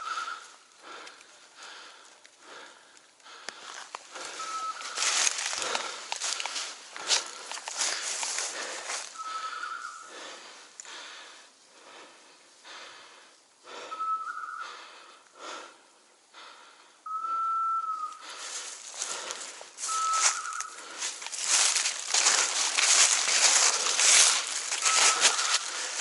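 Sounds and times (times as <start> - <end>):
footsteps through undergrowth: 3.3 - 10.4, 18.0 - 26.0
high piping whistle: 4.3 - 5.1, 9.1 - 10.1, 13.9 - 14.7, 17.1 - 18.2, 19.8 - 20.8, 23.8 - 26.0.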